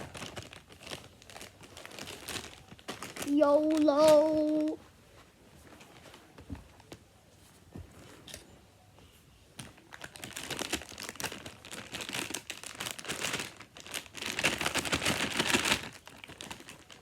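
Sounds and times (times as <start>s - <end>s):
packaging wrap crinkling: 0.0s - 4.8s, 9.7s - 17.0s.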